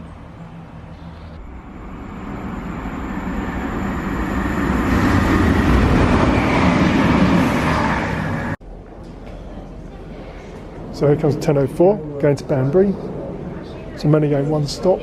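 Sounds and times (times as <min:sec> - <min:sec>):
diesel train passing close by: 0:00.0 - 0:08.6.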